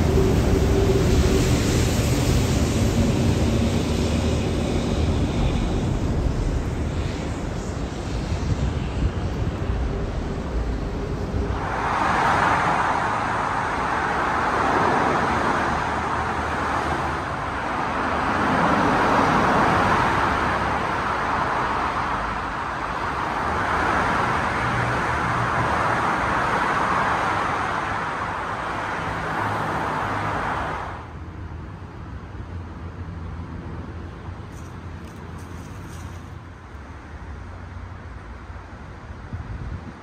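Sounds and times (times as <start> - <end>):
tyres hissing on wet street: 0.0 - 31.1.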